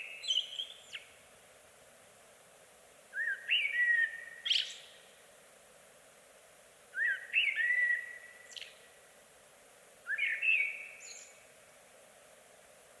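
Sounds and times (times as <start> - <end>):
faint steady hiss: 0.0 - 13.0
songbird whistling: 3.2 - 4.8, 7.0 - 8.7, 10.1 - 11.3.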